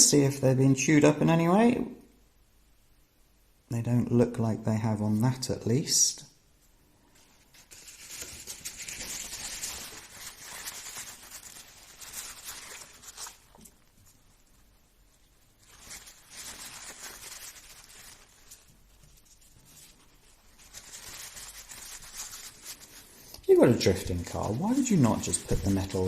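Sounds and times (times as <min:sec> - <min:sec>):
hands rubbing small parts: 0:07.2 - 0:26.0.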